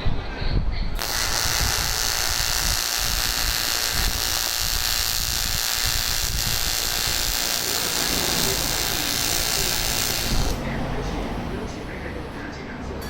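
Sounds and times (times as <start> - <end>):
welding arc buzzing hiss: 1.0 - 10.6.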